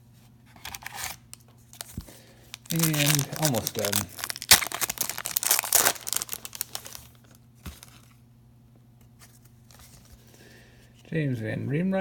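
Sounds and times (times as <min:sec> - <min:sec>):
foil pack tearing and crinkling: 0:01.8 - 0:08.1.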